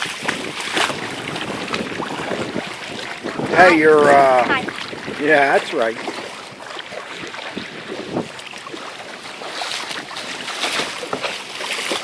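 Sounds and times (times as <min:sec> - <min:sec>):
wind buffeting microphone: 0:00.0 - 0:10.4
paddle splashing in water: 0:00.0 - 0:12.0.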